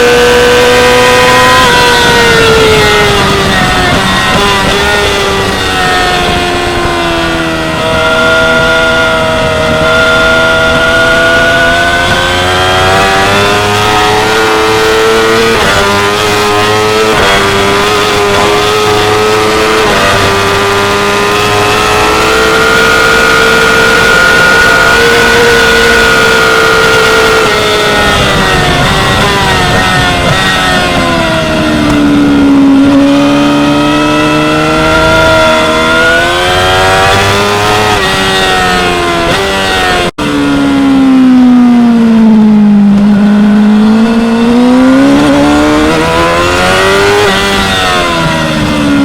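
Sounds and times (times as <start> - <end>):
motorcycle engine revving high: 0.0 - 49.0.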